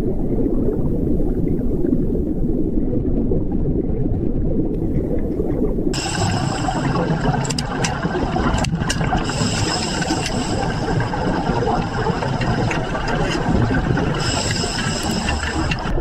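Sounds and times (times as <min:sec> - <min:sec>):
high whining tones: 0:06.0 - 0:16.0
machine running with rattle: 0:06.0 - 0:16.0.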